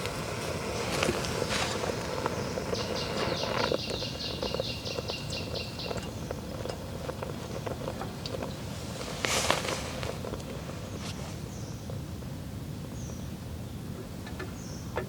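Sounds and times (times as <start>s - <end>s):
light clicks and knocks: 0.8s - 11.2s, 14.2s - 15.0s
bird singing a trill: 1.6s - 8.7s, 14.4s - 15.0s.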